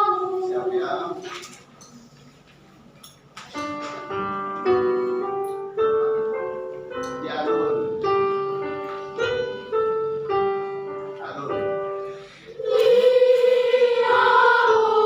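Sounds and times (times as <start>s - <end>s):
children's choir singing: 0.0s - 1.2s, 12.5s - 15.0s
piano chords: 3.6s - 15.0s.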